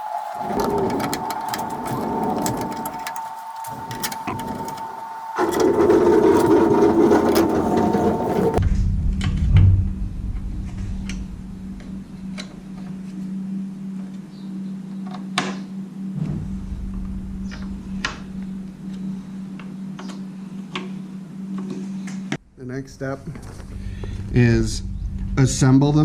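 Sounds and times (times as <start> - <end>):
steady low hum: 0.0 - 26.0
metal parts clicking and knocking: 0.4 - 8.6
low rumble: 5.6 - 14.9, 15.9 - 20.5, 22.4 - 26.0.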